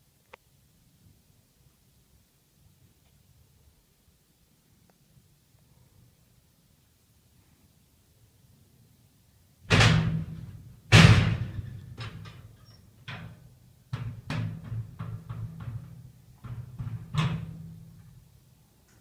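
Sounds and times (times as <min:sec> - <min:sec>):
knocks and bangs: 0:09.7 - 0:12.5, 0:13.1 - 0:17.8.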